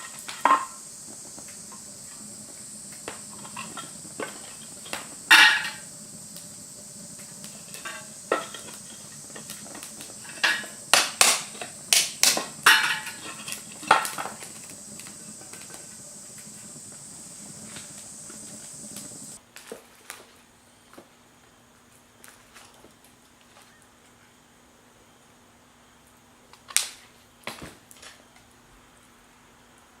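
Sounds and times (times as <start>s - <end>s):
faint steady high hiss: 0.0s - 30.0s.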